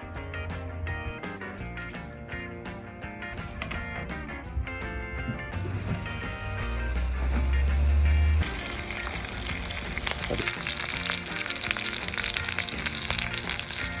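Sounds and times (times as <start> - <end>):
music with bass: 0.0 - 14.0
fish sizzling and popping: 5.6 - 14.0.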